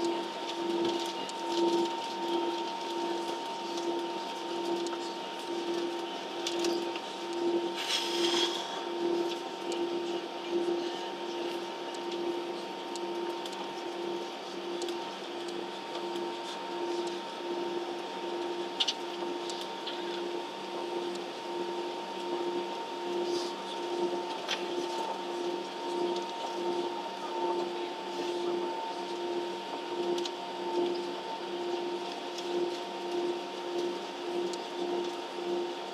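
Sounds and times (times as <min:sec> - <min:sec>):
throbbing drone: 0:00.0 - 0:17.1.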